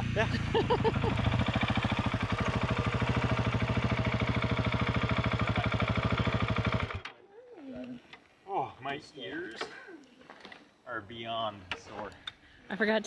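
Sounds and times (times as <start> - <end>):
vehicle engine idling: 0.0 - 7.0.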